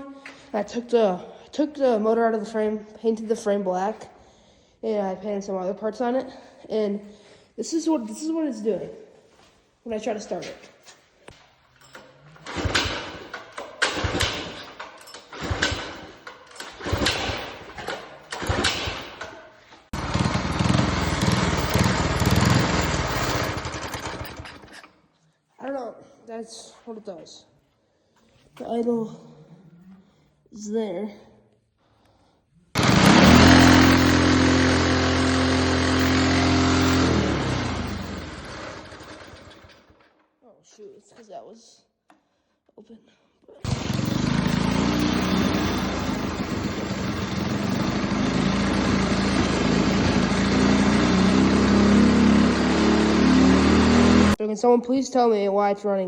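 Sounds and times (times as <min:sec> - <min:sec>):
small engine pull-started: 0:11.8 - 0:25.0, 0:32.8 - 0:40.1, 0:43.6 - 0:54.4
small engine running steadily: 0:12.4 - 0:17.5, 0:20.0 - 0:24.7, 0:32.8 - 0:39.8, 0:43.6 - 0:54.4.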